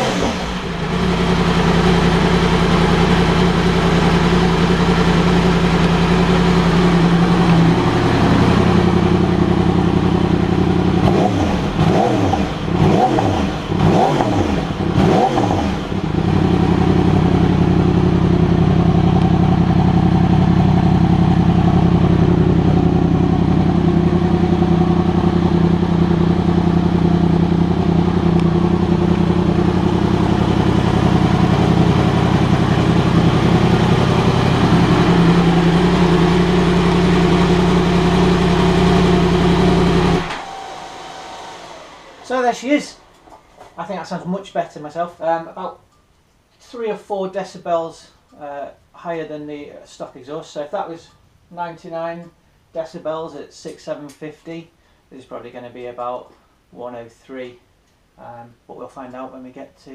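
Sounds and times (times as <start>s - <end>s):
motorcycle engine revving: 0.0s - 44.2s.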